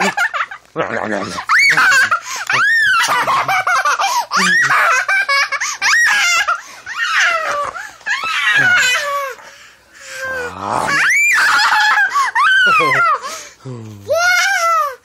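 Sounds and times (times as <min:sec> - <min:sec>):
baby laughing and squealing: 0:01.2 - 0:09.4, 0:10.9 - 0:13.2.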